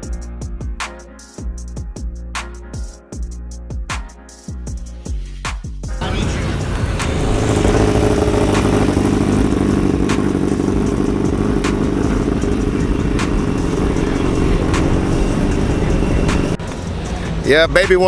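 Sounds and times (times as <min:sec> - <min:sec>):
vehicle engine running: 0:06.0 - 0:18.0.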